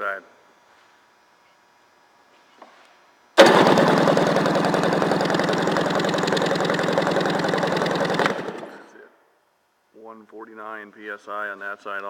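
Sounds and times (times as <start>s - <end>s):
engine cranked by starter: 3.4s - 9.0s.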